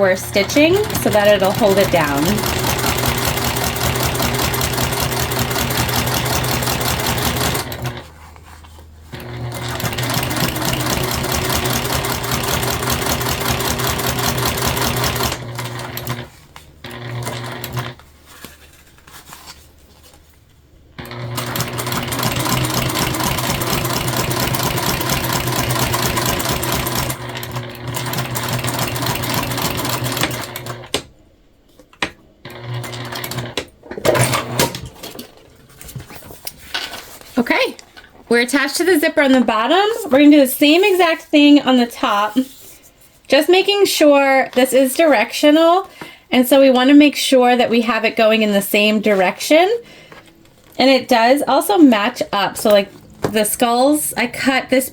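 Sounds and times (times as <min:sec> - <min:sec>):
sewing machine stitching: 0:00.0 - 0:08.1, 0:09.1 - 0:18.0, 0:21.0 - 0:31.1, 0:32.5 - 0:35.2.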